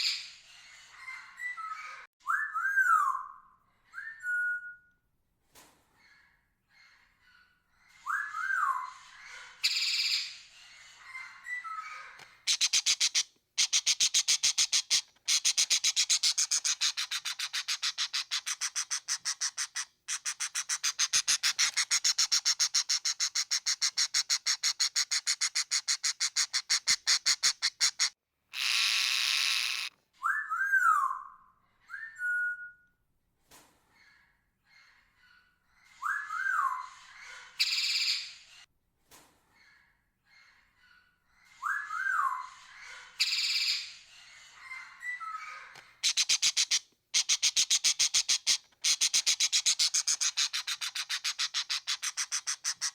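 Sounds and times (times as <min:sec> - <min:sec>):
parrot harsh chattering: 0:12.5 - 0:29.9, 0:46.0 - 0:52.9
parrot screech: 0:27.2 - 0:29.9.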